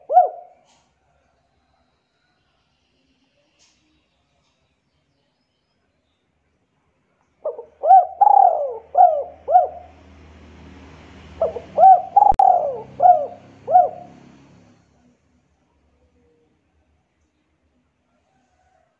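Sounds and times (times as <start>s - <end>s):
bird calling: 0.0s - 0.8s, 7.4s - 10.0s, 11.4s - 14.4s.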